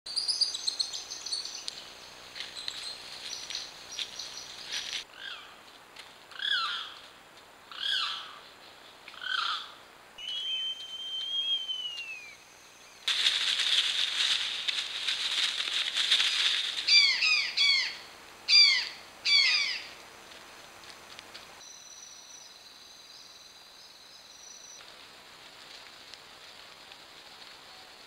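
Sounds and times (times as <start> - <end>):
forest ambience: 0.1 - 28.0
wild birds calling: 0.2 - 5.6, 6.3 - 7.1, 7.7 - 20.0
dense hiss: 11.9 - 17.0.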